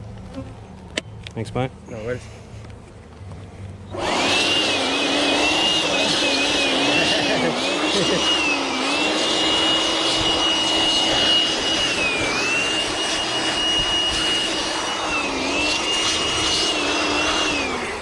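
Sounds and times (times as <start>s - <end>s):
electric motor running: 3.9s - 18.0s.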